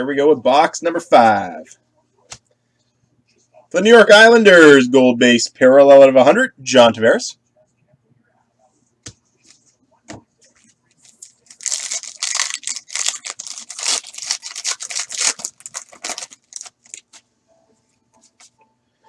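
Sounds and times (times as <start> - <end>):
card pack wrapper crinkling: 11.0 - 17.2.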